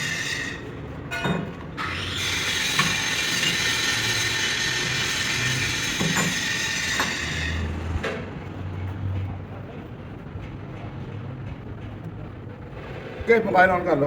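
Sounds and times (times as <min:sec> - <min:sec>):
machine with high metallic whine: 0:00.0 - 0:08.0.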